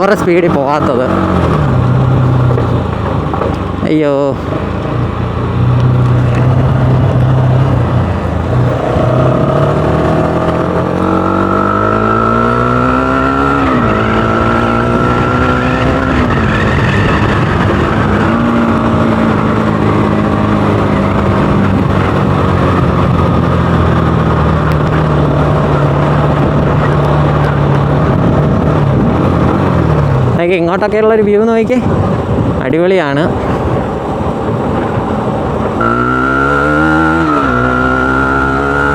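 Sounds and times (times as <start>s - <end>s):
motorcycle engine running: 0.0s - 30.6s.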